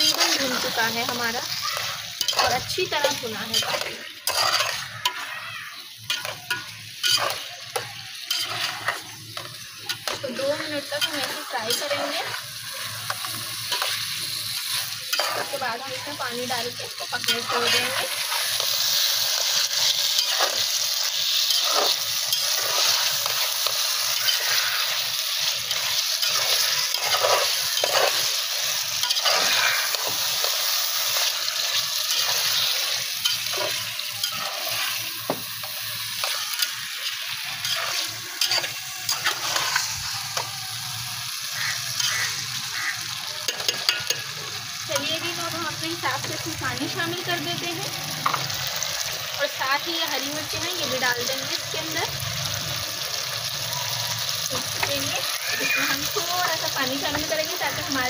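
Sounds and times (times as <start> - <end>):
metal spatula scraping a pot: 0.0 - 5.4, 6.0 - 40.5
potatoes sizzling in oil: 0.0 - 58.0.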